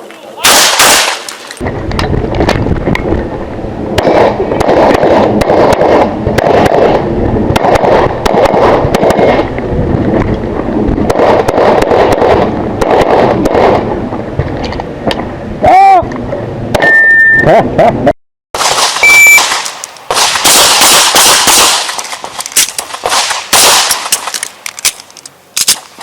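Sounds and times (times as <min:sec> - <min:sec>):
pistol shots: 0:00.4 - 0:01.4, 0:04.0 - 0:07.0, 0:18.6 - 0:24.5
loud steady rushing noise: 0:00.8 - 0:16.8.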